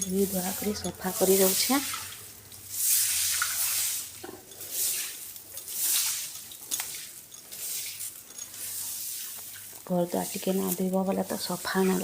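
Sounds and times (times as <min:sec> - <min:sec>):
water splashing on a door: 0:00.3 - 0:08.0.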